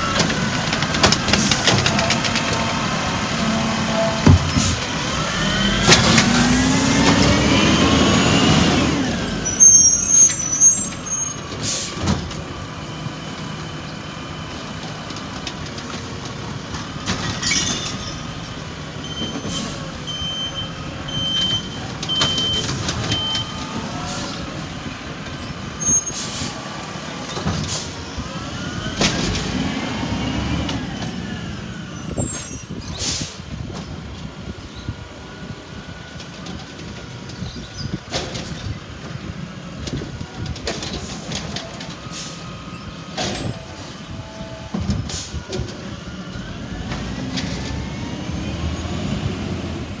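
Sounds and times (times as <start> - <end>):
short beeps: 20.1 - 23.6.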